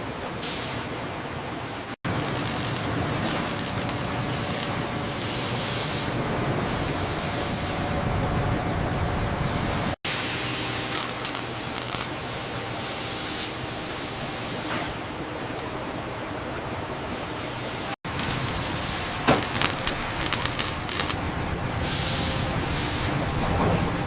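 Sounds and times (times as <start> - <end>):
steady hissing noise: 2.1 - 7.8, 9.5 - 14.7, 17.1 - 23.3.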